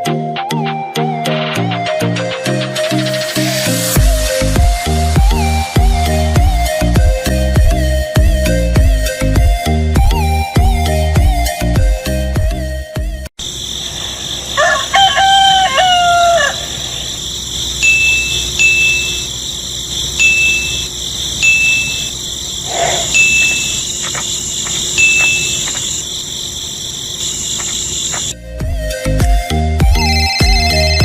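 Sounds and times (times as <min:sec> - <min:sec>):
rooster crowing: 0:13.6 - 0:28.3
short high-pitched peeps: 0:17.8 - 0:19.4, 0:20.2 - 0:22.2, 0:23.1 - 0:24.2, 0:24.8 - 0:26.0.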